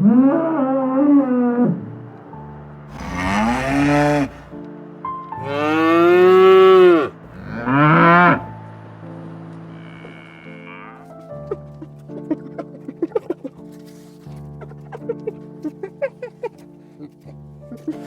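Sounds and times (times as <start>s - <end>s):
background music: 1.3s - 18.0s
drawn-out animal calls: 2.9s - 4.6s, 7.2s - 8.6s.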